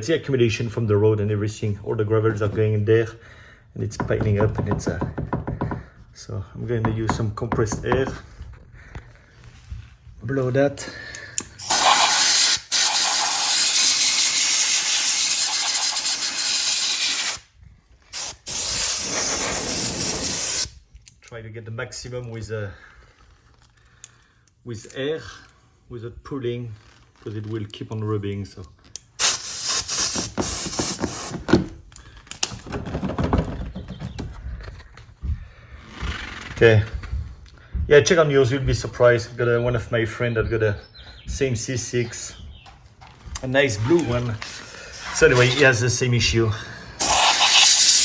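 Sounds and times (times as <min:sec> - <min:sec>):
compressed air blow gun hissing: 0:11.6 - 0:17.5, 0:18.1 - 0:20.8, 0:29.2 - 0:31.5, 0:47.0 - 0:48.0.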